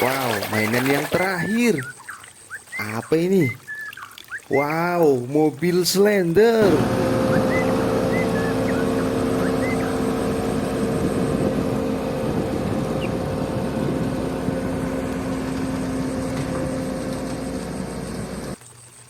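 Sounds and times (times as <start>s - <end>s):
mechanical hum: 6.6s - 18.6s.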